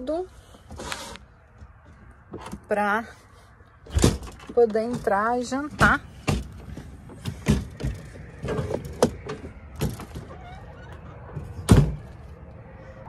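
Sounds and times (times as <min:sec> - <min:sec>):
knocks and clatter of gear: 0:03.9 - 0:12.2.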